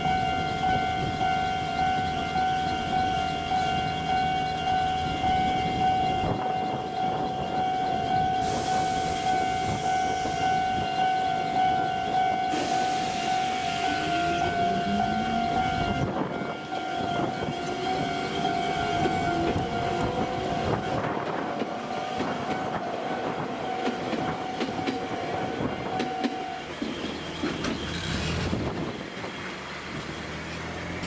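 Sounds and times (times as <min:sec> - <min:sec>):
crossing warning alarm tone: 0:00.0 - 0:27.5
train wheels clacking over joints: 0:16.7 - 0:30.7.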